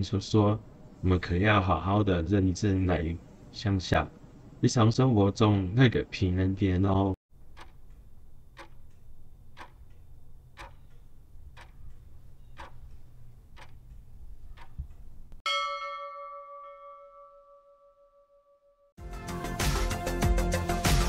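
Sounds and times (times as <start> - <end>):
clock ticking: 7.4 - 15.4
bell-like chime: 15.5 - 18.8.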